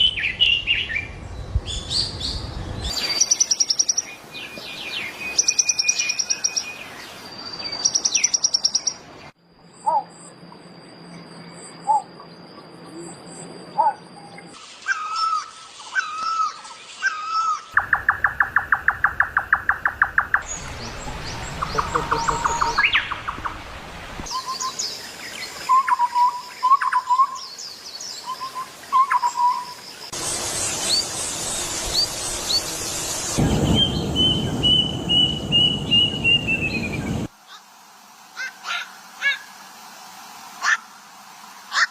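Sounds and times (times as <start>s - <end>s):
bird chirps: 0.0s - 9.0s, 9.7s - 23.6s, 24.2s - 37.3s
bird whistled notes: 24.3s - 24.8s, 33.6s - 37.2s.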